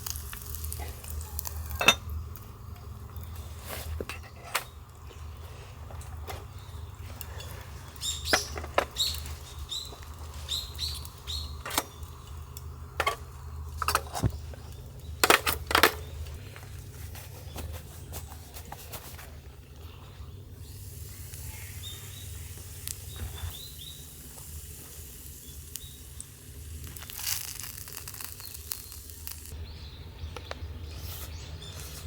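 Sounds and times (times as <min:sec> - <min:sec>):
small bird chirping: 0:06.5 - 0:12.8, 0:19.7 - 0:24.2, 0:25.4 - 0:26.2, 0:28.1 - 0:32.0.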